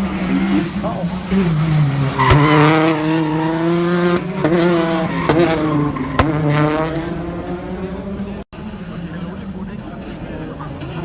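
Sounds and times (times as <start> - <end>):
rally car engine running hard: 3.8 - 11.0.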